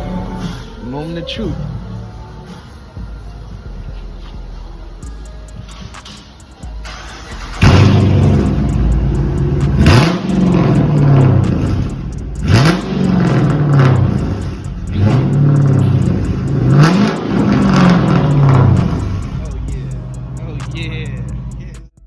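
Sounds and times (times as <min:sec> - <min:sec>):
loud car engine revving: 0:06.9 - 0:21.8.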